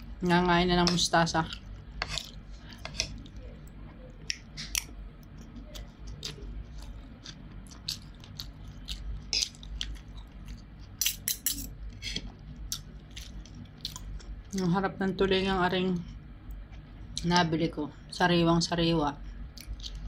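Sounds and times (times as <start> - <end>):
chewing with lip smacks: 1.4 - 11.0, 12.2 - 14.7, 19.4 - 20.0.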